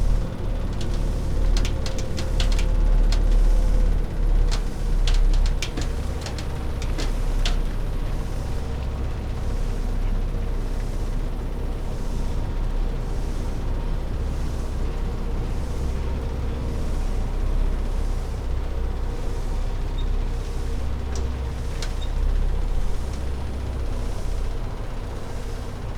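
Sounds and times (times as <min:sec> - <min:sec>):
sharp clicks and rattles: 0:00.0 - 0:08.2.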